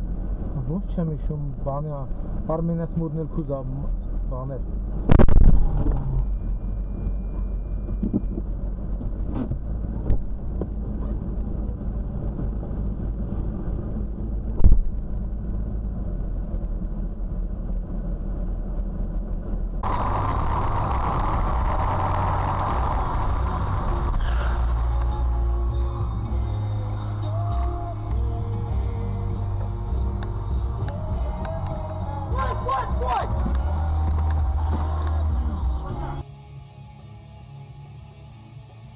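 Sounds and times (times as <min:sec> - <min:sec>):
car road and engine noise: 0:00.0 - 0:38.9.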